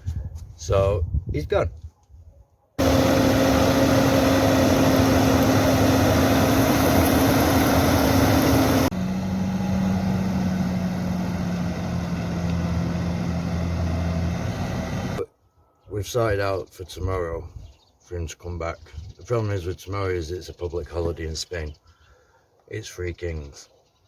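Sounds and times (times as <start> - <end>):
tractor engine running: 2.8 - 15.2.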